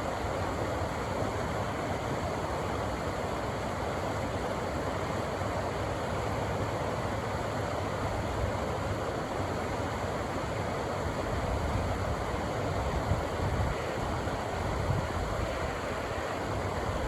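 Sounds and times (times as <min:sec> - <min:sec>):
rushing river water: 0:11.3 - 0:17.0.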